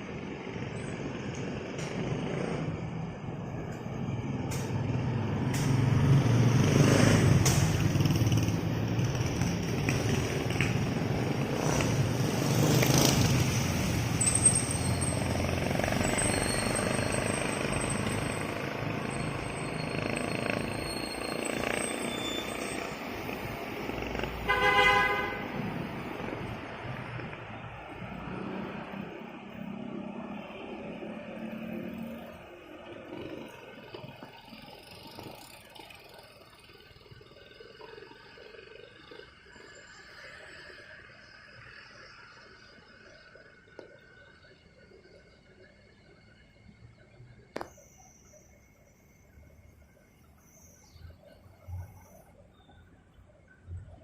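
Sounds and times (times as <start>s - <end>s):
vehicles passing: 0.0s - 54.0s
car horn toot: 24.5s - 25.6s.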